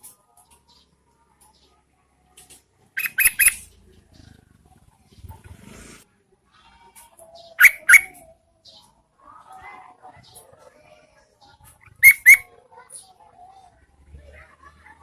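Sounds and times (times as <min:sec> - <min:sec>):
bird calling sharp notes: 0:03.0 - 0:03.7, 0:07.6 - 0:08.2, 0:11.8 - 0:12.5.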